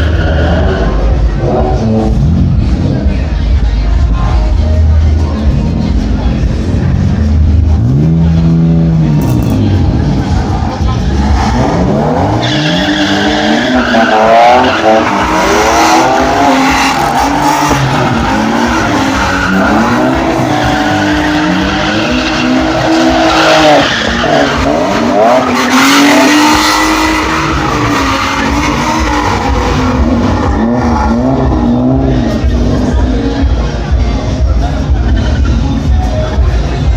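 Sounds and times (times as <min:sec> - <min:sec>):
car engine revving: 0:00.0 - 0:36.9
tyres screeching: 0:09.8 - 0:32.1.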